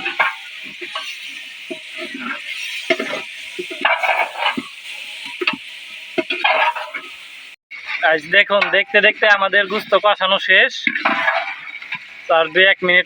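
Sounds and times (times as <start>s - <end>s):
spatula scraping and knocking pot: 0.0s - 7.1s
meat and onions sizzling in pot: 0.0s - 13.0s.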